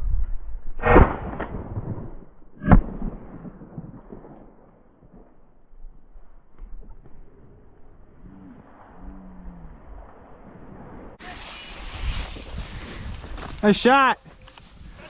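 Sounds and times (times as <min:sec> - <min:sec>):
shotgun shots: 0:02.6 - 0:04.5.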